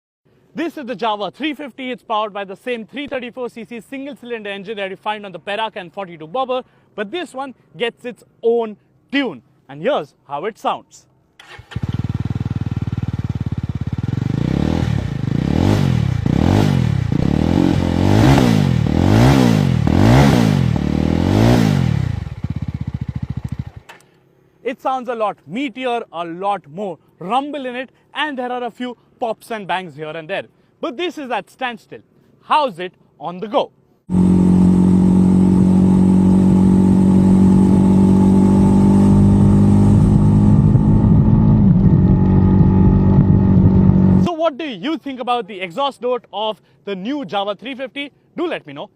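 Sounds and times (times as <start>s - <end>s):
motorcycle engine idling and revving: 11.4s - 24.3s, 34.1s - 44.3s.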